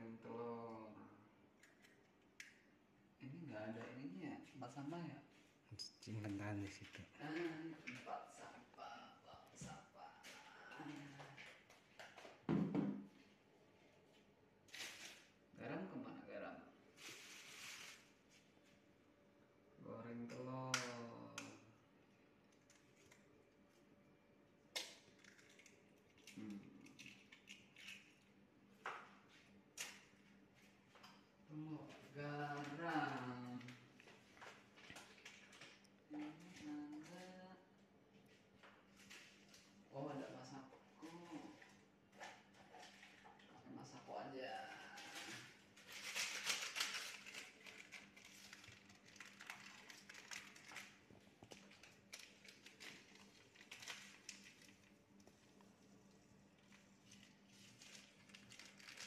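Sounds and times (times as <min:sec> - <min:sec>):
plastic sachet crinkling: 0:44.9 - 0:59.0.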